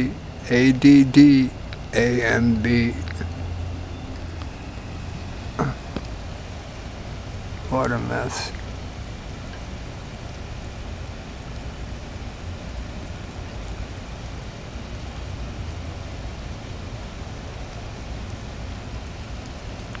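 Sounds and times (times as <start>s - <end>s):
rain hiss: 0.0s - 20.0s.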